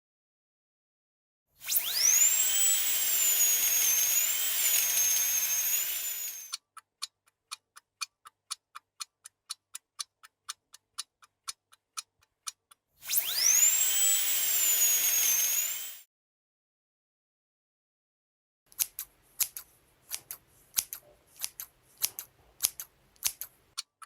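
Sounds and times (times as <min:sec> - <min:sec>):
high-pitched motor whine: 0:01.7 - 0:06.5, 0:13.0 - 0:16.0
clock ticking: 0:06.5 - 0:12.9, 0:18.7 - 0:24.0.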